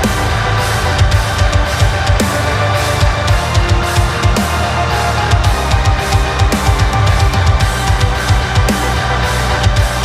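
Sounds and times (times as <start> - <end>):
heavy metal music: 0.0 - 10.0.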